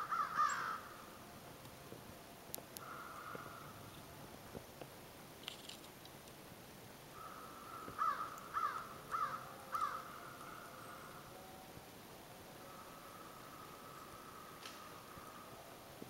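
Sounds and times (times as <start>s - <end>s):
bird calling: 0.0s - 1.1s, 7.1s - 11.8s, 12.4s - 15.8s
faint steady tone: 0.0s - 16.0s.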